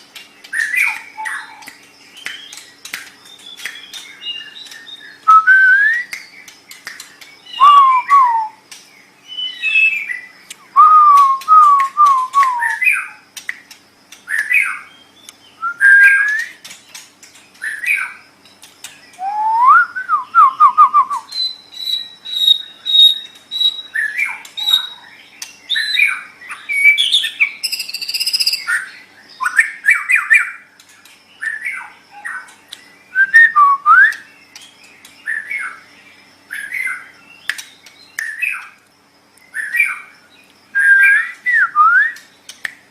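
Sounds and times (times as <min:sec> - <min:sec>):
songbird whistling phrases: 0:00.5 - 0:02.6, 0:03.2 - 0:08.6, 0:09.2 - 0:13.2, 0:14.3 - 0:16.6, 0:19.1 - 0:30.6, 0:31.4 - 0:34.4, 0:40.7 - 0:42.3.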